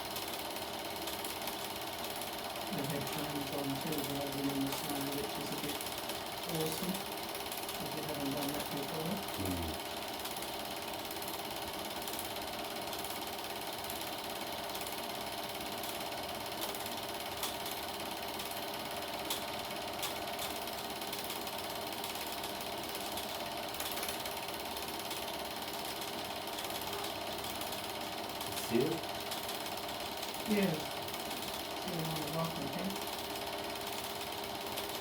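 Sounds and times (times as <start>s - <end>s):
film projector clattering: 0.0s - 35.0s.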